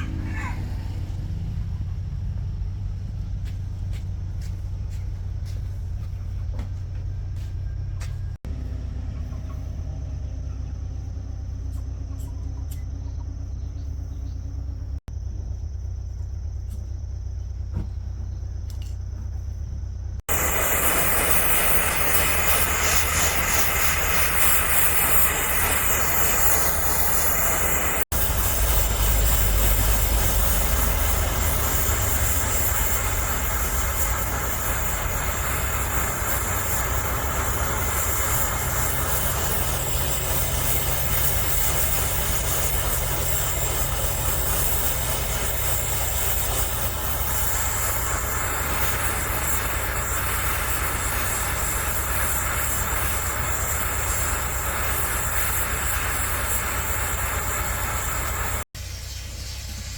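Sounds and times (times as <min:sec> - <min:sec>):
low rumble: 0:00.0 - 0:48.8
loud hissing noise: 0:19.8 - 0:59.9.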